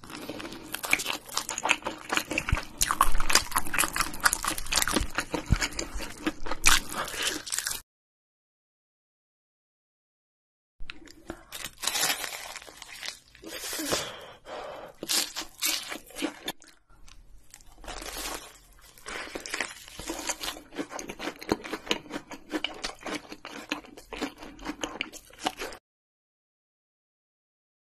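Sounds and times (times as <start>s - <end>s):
crunching bites: 10.9s - 14.0s.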